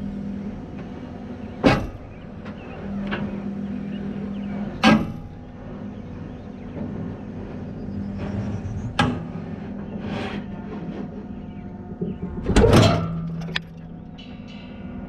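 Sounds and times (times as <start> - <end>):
diesel engine running: 0.0 - 15.0
cab rattles and clunks: 10.9 - 14.6.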